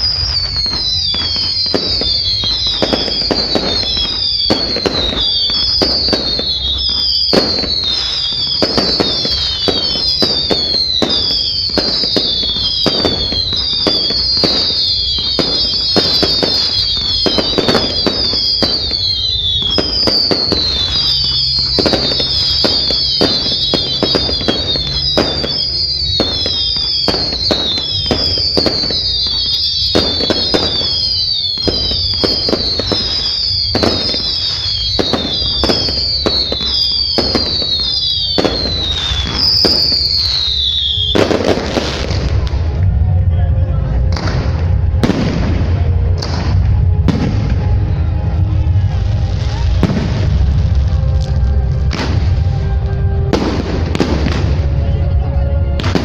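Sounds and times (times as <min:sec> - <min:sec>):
falling firework whistles: 0:00.0 - 0:42.9
firework bangs and crackling: 0:00.0 - 0:56.0.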